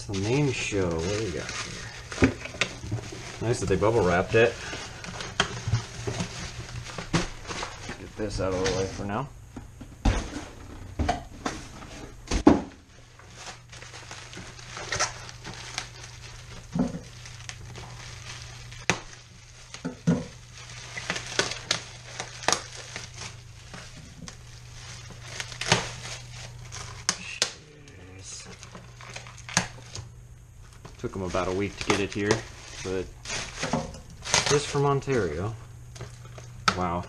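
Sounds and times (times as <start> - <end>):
plastic packaging crinkling: 0.0 - 9.3, 12.7 - 37.0
steady low hum: 0.0 - 37.0.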